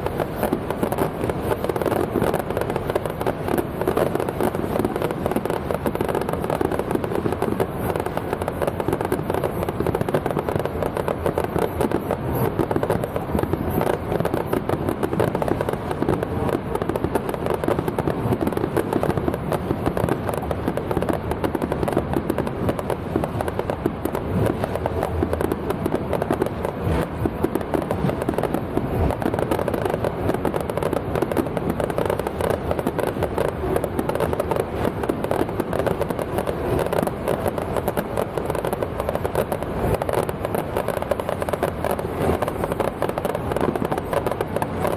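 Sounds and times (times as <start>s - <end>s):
firecrackers crackling: 0.0s - 44.9s.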